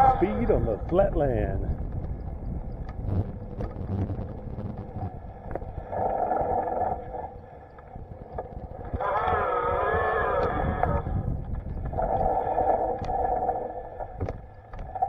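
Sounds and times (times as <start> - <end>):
bicycle tyres rumbling on trail: 0.0 - 15.0
wind on microphone: 0.0 - 15.0
bicycle clicks and rattles: 1.7 - 4.0
short multi-tone pitched sound: 3.0 - 5.2.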